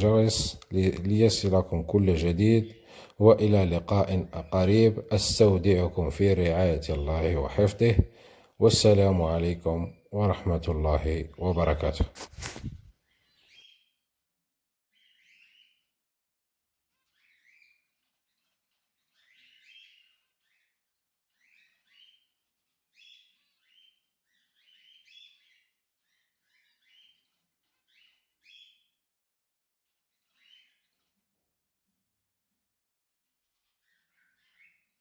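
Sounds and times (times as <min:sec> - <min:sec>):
faint finch chirps: 0:12.6 - 0:14.0, 0:14.9 - 0:15.9, 0:16.9 - 0:29.0, 0:30.0 - 0:31.4, 0:33.5 - 0:35.0.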